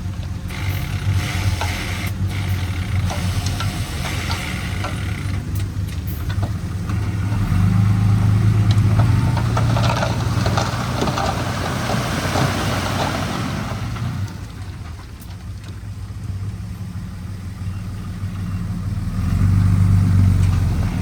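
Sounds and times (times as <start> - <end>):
clattering and grinding: 0.0 - 16.1, 19.3 - 21.0
heavy diesel engine running: 0.0 - 21.0.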